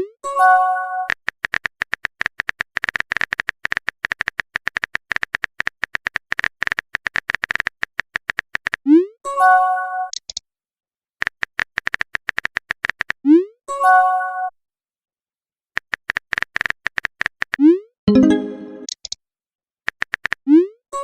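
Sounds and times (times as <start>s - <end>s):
chime-like message tone: 18.1s - 18.9s.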